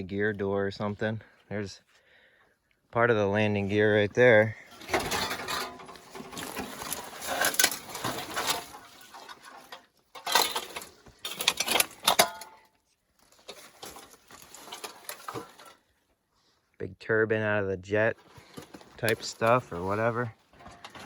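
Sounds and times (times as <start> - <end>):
scrap metal clinking and clattering: 4.6 - 15.9, 18.4 - 21.0.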